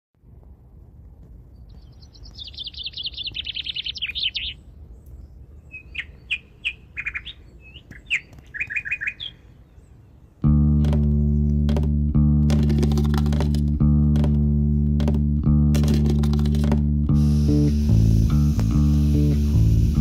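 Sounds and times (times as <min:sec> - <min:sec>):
faint low background rumble: 0:00.2 - 0:18.8
songbirds singing: 0:01.3 - 0:15.5.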